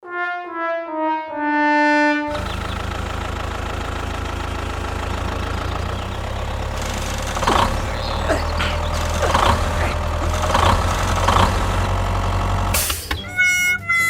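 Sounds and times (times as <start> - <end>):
sad trombone brass notes: 0.0 - 2.4
small motor humming: 5.3 - 12.2.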